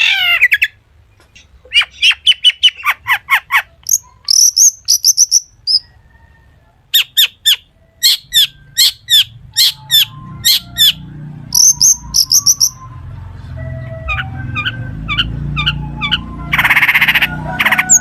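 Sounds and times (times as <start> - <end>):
bird singing sharp high notes: 7.0 - 18.0.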